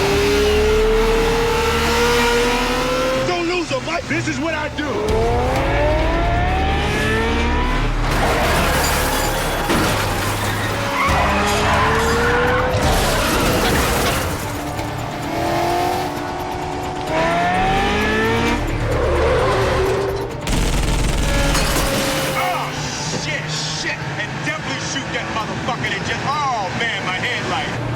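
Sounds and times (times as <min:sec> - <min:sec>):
car engines revving: 0:00.0 - 0:27.9
tyres screeching: 0:08.0 - 0:15.0.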